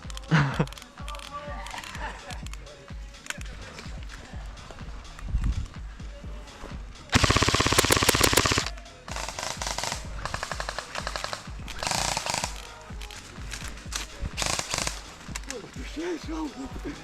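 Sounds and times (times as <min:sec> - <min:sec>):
airsoft guns firing full auto: 0:07.1 - 0:12.8, 0:14.4 - 0:15.5.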